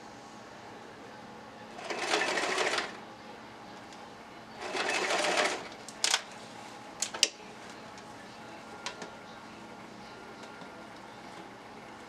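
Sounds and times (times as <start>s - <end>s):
sewing machine running: 1.7s - 3.0s, 4.6s - 5.7s.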